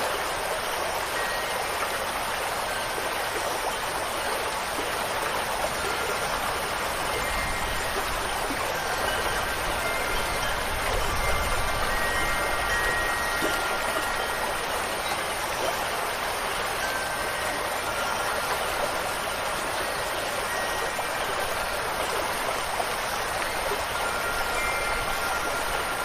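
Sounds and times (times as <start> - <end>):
faint wind chimes ringing: 0.0 - 26.0
water rushing: 0.0 - 26.0.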